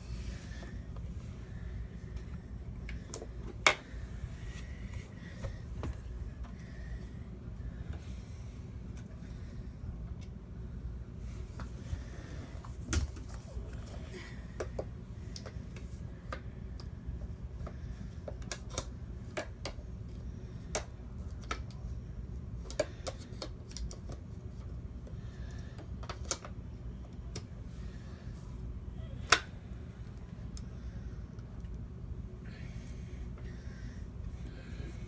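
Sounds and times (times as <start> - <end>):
low steady hum: 0.0 - 35.0
vacuum parts clicking and tapping: 14.6 - 21.9, 22.6 - 27.5.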